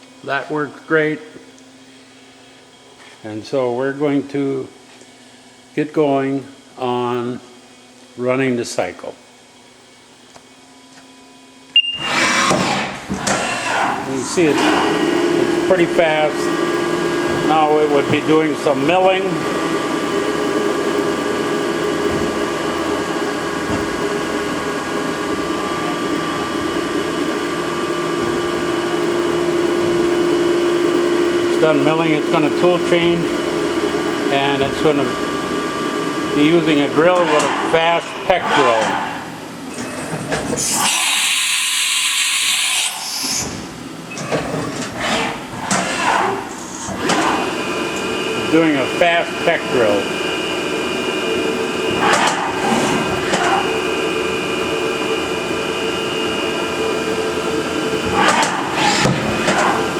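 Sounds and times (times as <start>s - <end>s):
constant hum: 0.0s - 41.0s, 43.2s - 59.9s
milling machine whine: 11.4s - 59.9s
machine knocks: 21.7s - 24.4s.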